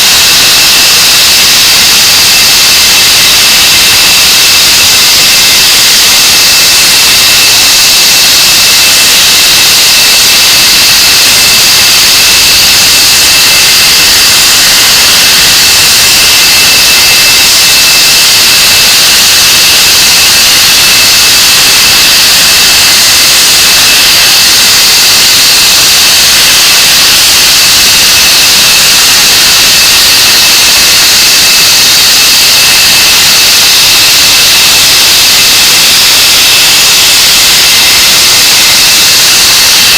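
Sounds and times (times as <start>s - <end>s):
high-pitched turbine whine: 0.0s - 39.9s
jet engine roar: 9.2s - 36.3s.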